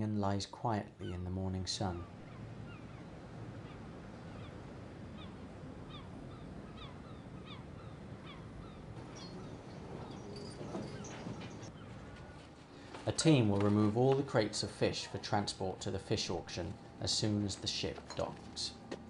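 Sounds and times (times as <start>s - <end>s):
low background hum: 0.0s - 19.0s
birds calling: 1.0s - 12.9s.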